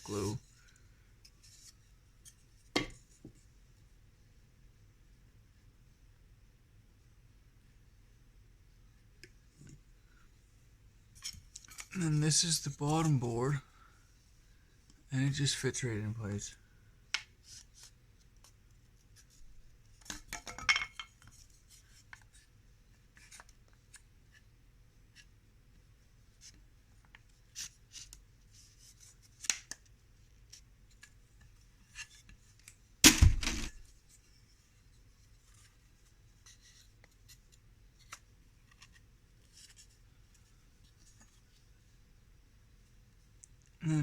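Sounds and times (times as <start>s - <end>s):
heavy wooden thud: 33.1s - 33.8s.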